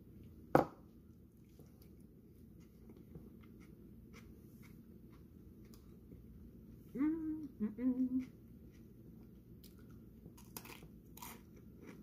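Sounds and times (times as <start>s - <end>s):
quiet chewing: 1.3s - 12.0s
loud crunch of bite: 9.6s - 12.0s.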